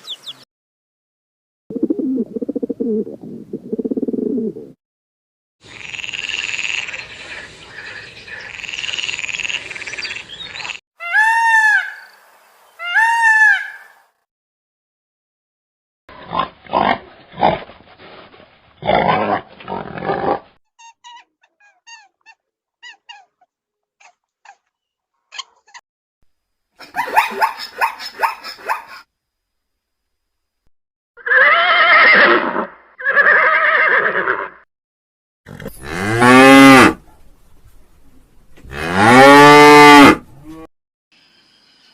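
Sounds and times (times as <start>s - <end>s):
animal grunts: 16.1s - 17.7s, 18.8s - 20.5s, 35.5s - 37.0s
rough animal call: 18.8s - 25.8s.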